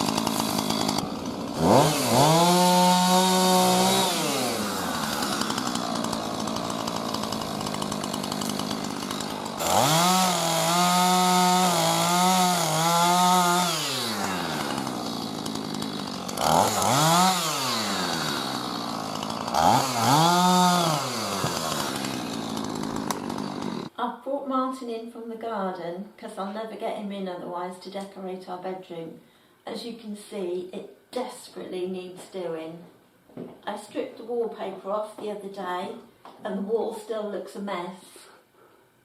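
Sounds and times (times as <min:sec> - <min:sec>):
small petrol engine revving: 0:00.0 - 0:23.9.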